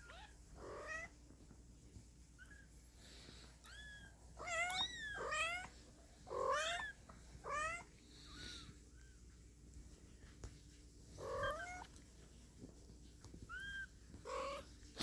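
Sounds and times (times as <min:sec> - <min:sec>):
kittens mewing: 0:13.5 - 0:15.0.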